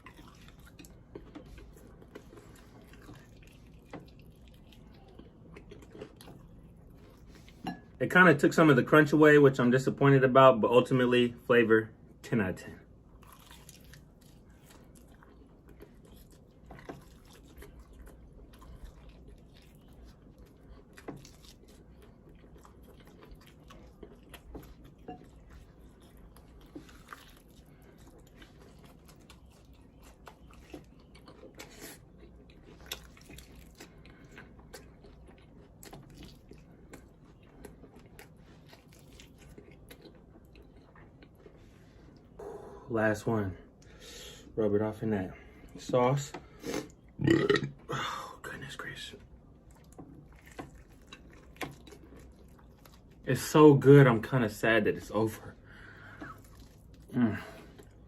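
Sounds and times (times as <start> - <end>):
person chewing food: 0.0 - 8.0, 12.9 - 42.8, 49.2 - 53.2, 55.6 - 58.0.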